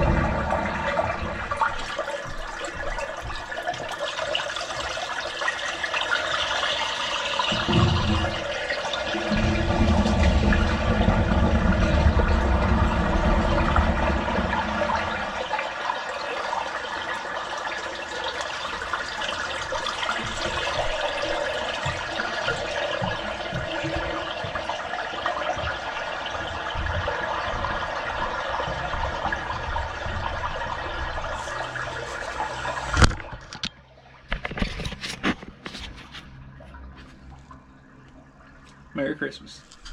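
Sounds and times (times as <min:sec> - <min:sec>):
heavy low rumble: 0:00.0 - 0:01.8, 0:07.5 - 0:15.5
water running and draining: 0:00.0 - 0:39.9.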